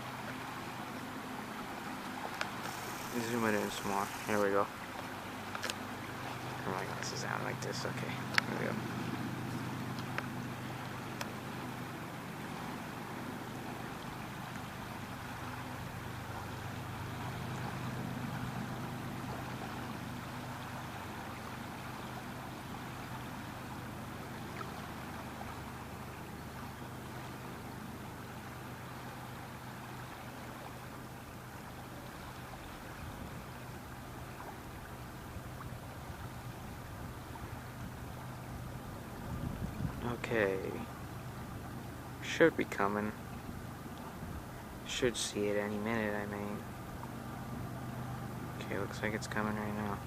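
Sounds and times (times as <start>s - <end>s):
low even hum: 0.0s - 50.0s
rushing wind: 38.7s - 40.3s.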